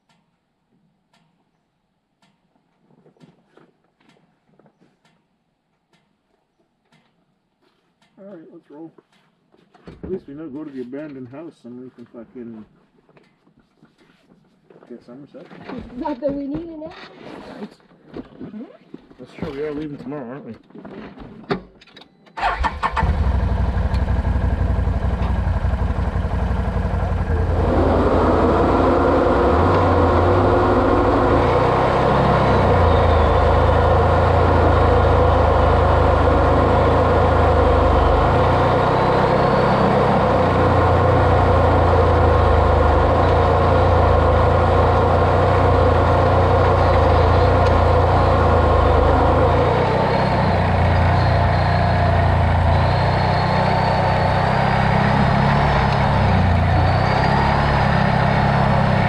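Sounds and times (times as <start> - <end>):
vehicle engine rumbling: 22.4 - 59.0.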